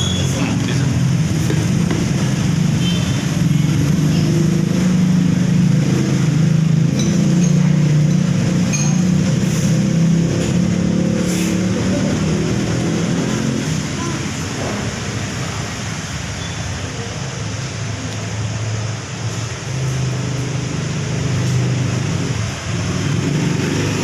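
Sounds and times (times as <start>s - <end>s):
road traffic engine rumble: 0.0s - 24.0s.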